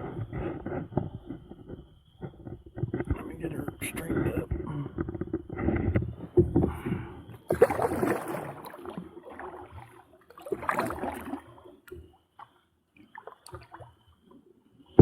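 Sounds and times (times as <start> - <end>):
paddle splashing in water: 6.3 - 14.0.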